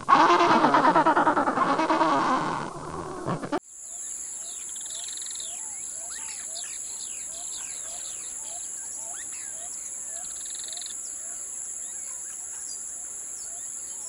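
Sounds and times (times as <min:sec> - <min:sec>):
penguins braying: 0:00.0 - 0:03.6
small birds chirping: 0:03.7 - 0:14.0.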